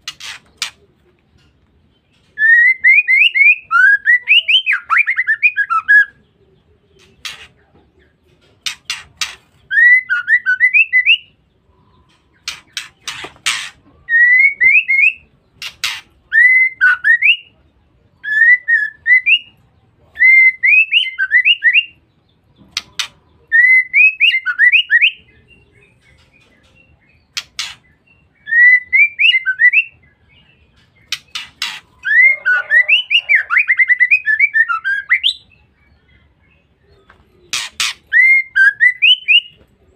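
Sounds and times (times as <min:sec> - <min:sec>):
sharp bird clicks: 0:08.6 - 0:09.6, 0:12.1 - 0:13.8, 0:15.6 - 0:16.2, 0:22.7 - 0:23.2, 0:26.0 - 0:28.0, 0:30.8 - 0:32.0
bird calling rising notes: 0:31.3 - 0:35.3.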